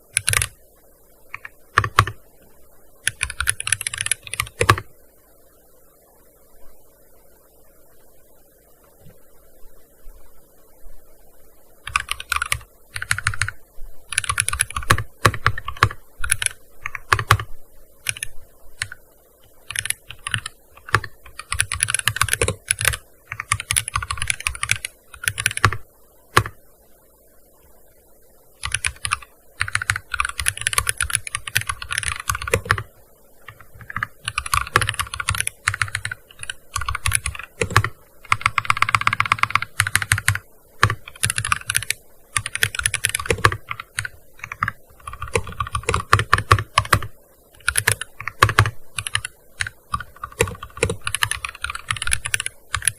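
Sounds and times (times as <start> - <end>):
keyboard keystroke clicks: 33.5 - 52.9.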